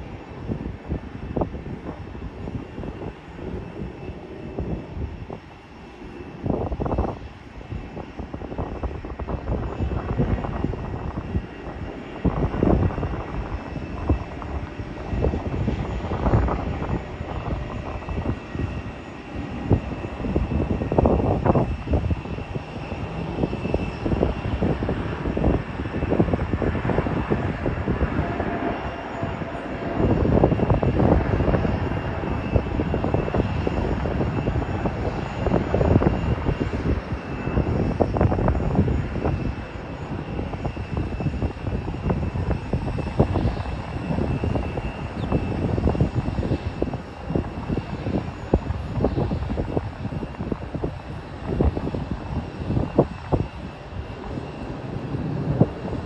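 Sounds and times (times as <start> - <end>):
jet engine whine: 0.0 - 56.0
wind buffeting microphone: 0.0 - 56.0.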